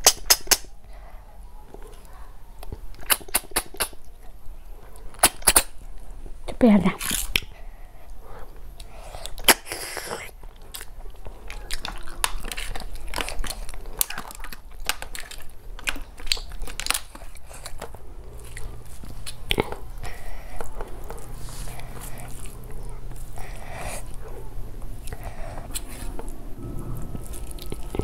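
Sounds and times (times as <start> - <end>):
chewing and crunching: 7.0 - 28.0.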